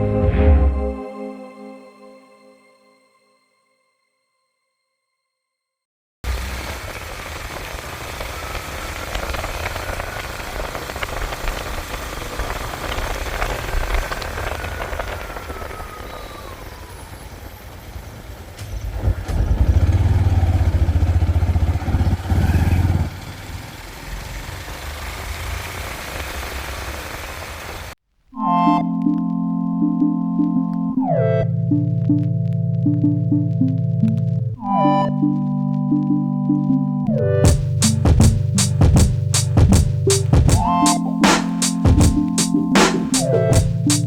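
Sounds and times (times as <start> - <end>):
road and wind noise: 6.3 - 27.9
motorcycle engine running: 19.4 - 23.6.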